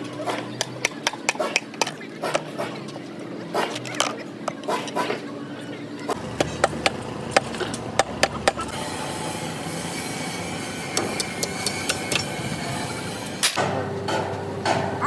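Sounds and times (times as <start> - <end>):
hand tools knocking on metal: 6.2 - 8.8, 10.9 - 12.8.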